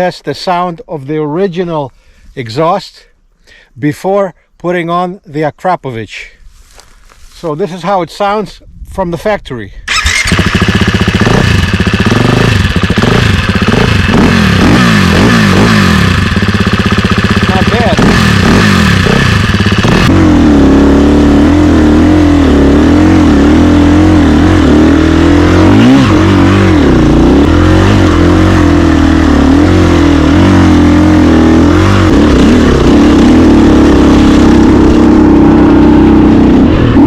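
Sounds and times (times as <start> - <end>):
dirt bike engine revving: 9.9 - 37.0.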